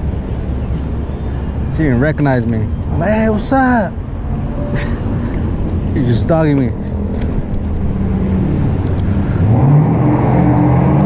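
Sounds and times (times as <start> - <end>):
vehicle engine accelerating: 6.7 - 11.0.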